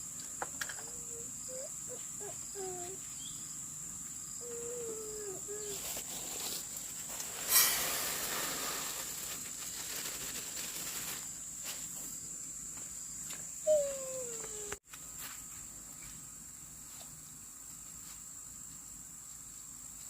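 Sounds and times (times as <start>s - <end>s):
insects trilling: 0.0s - 14.8s.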